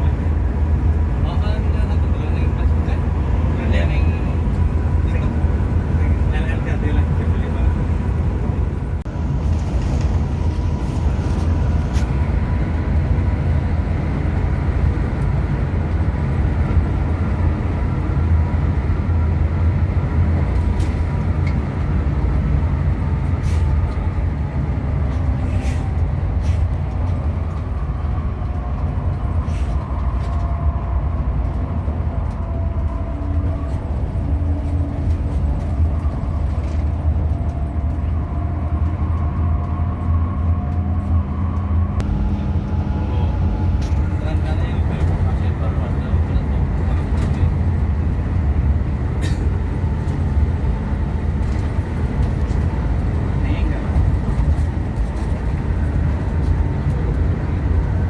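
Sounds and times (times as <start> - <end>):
bus diesel engine drone: 0.0 - 58.0
road noise: 0.0 - 58.0.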